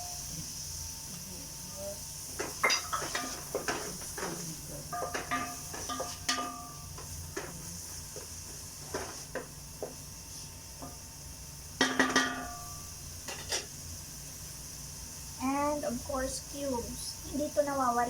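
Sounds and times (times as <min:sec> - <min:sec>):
metal spoon clinking in pot: 0:02.6 - 0:04.3, 0:04.9 - 0:06.8, 0:11.8 - 0:13.7.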